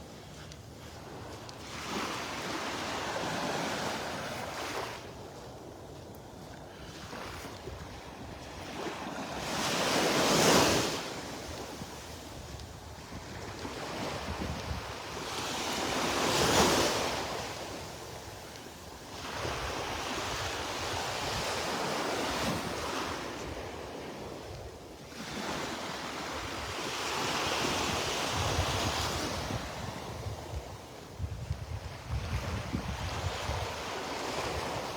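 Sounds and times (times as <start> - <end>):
waves breaking on beach: 0.0 - 31.1, 32.0 - 34.9
wind buffeting microphone: 3.2 - 15.2, 27.6 - 34.9.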